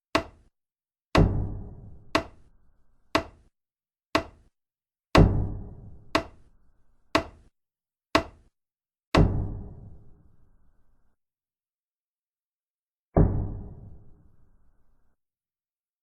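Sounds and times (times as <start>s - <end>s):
heavy booming knock: 13.2s - 13.7s.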